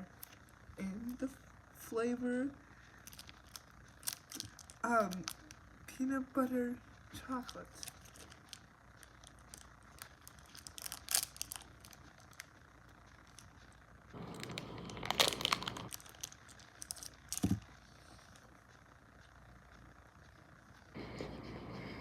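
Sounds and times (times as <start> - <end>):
plastic wrapper tearing: 3.0 - 5.6, 7.6 - 12.5, 14.2 - 17.6.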